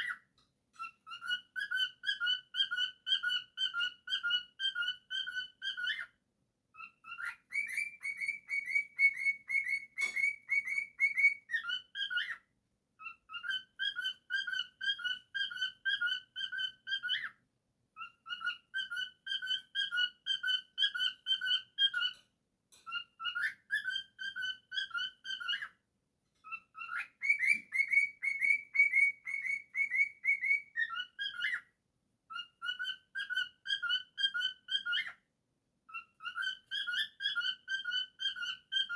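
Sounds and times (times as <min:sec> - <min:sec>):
bird whistling: 0:00.8 - 0:06.1, 0:06.8 - 0:12.4, 0:13.0 - 0:17.3, 0:22.9 - 0:25.7, 0:26.5 - 0:31.7, 0:32.3 - 0:35.2, 0:35.9 - 0:38.9.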